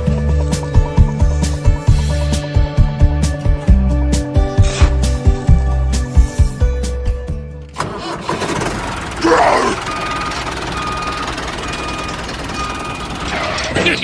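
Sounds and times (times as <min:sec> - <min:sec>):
music: 0:00.0 - 0:07.8
vehicle engine running: 0:07.8 - 0:14.0.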